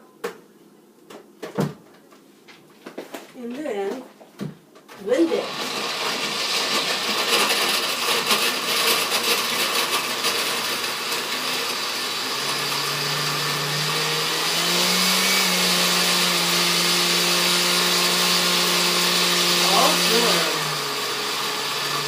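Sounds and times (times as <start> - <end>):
blender blending: 5.1 - 22.0.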